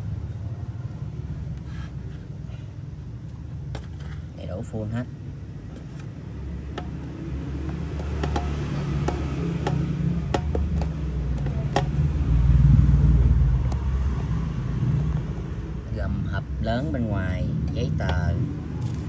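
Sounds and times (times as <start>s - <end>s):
vehicle engine rumble passing: 5.1s - 19.0s.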